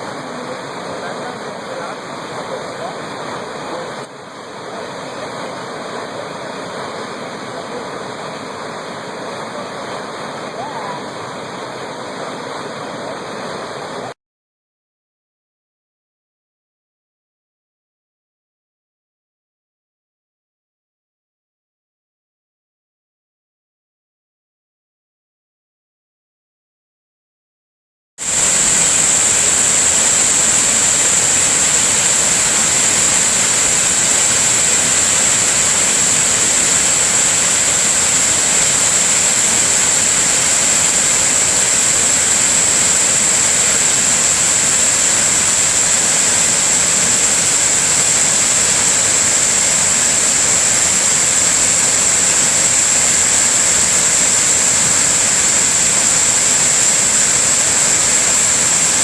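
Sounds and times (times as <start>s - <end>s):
waterfall rushing: 0.0s - 14.1s, 28.2s - 59.0s
thin high hiss: 28.2s - 59.0s.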